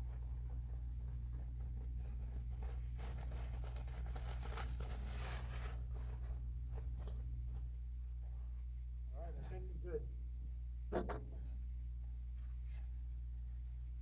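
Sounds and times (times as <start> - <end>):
materials rustling and crinkling: 0.0 - 8.7
steady low hum: 0.0 - 14.0.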